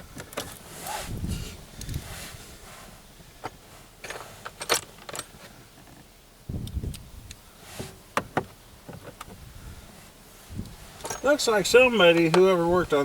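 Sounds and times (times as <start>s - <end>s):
hand tools clicking and clinking: 11.0s - 11.5s.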